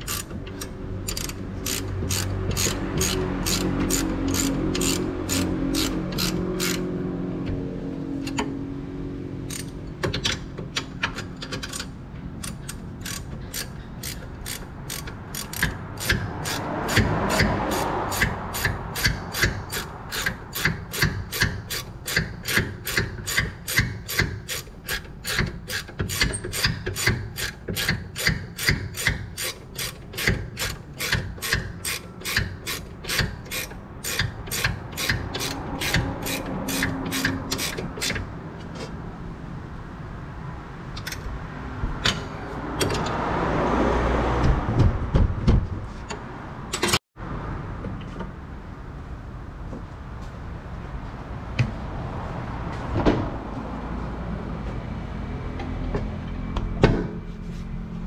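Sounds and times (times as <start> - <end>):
ratchet wrench clicking: 0.0 - 6.9, 9.5 - 38.3
metal rubbing: 13.2 - 39.0.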